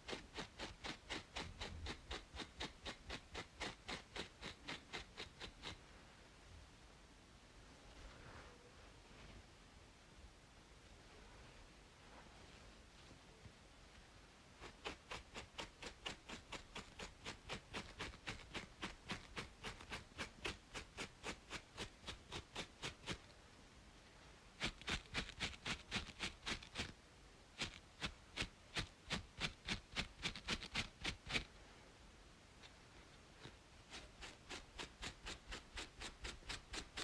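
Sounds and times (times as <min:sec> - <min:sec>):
scratching on a scalp: 0:00.0 - 0:05.9, 0:14.5 - 0:23.3, 0:24.6 - 0:27.0, 0:27.6 - 0:31.5, 0:32.6 - 0:37.0.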